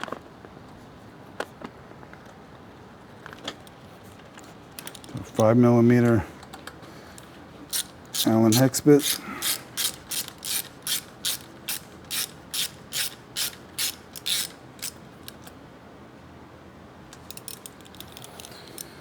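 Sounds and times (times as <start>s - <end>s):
hand ratchet clicking: 7.2s - 15.6s, 17.1s - 19.0s.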